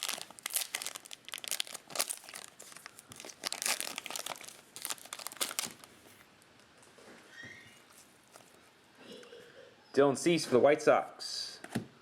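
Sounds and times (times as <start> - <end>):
foil wrappers crinkling: 0.0 - 6.0.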